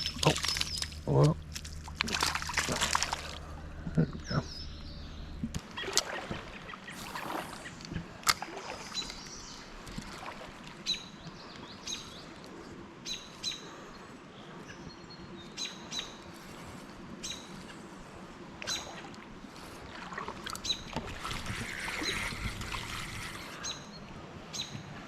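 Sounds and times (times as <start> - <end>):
faint outdoor background noise: 0.0 - 25.0
small birds chirping: 3.8 - 7.8.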